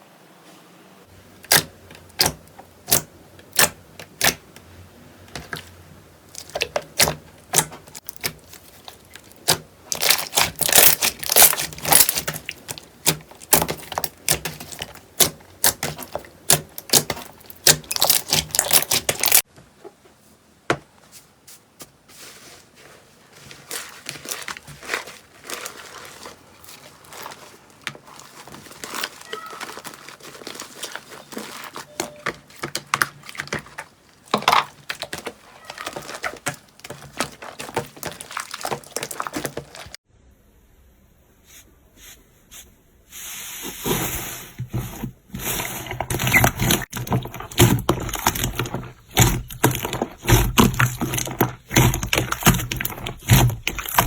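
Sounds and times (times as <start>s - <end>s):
sticky clicks and crackles: 6.3s - 19.4s, 23.8s - 40.0s, 45.4s - 54.0s
slime squeezed by hand: 9.4s - 19.4s.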